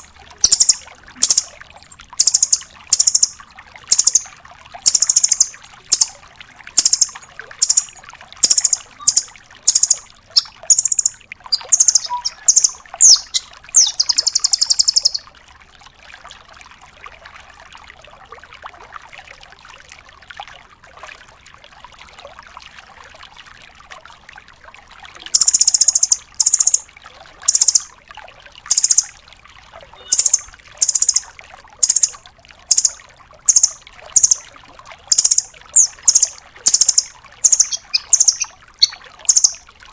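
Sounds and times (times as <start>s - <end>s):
bird calling in sharp high notes: 0.0s - 1.6s, 2.2s - 4.3s, 4.9s - 6.2s, 6.8s - 15.2s, 29.9s - 34.4s, 35.1s - 39.6s.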